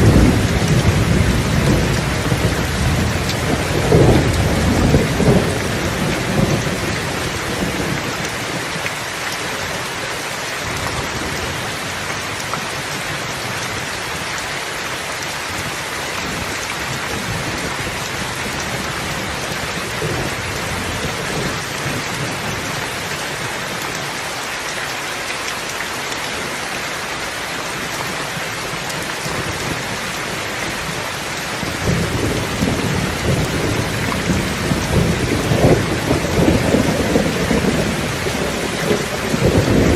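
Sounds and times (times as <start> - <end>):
thunder rumbling: 0.0 - 8.2, 31.5 - 39.9
heavy rain: 0.0 - 39.9.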